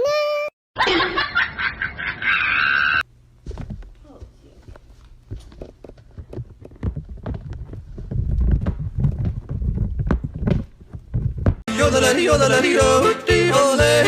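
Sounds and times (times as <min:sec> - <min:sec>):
irregular knocks and thumps: 0:03.4 - 0:11.7.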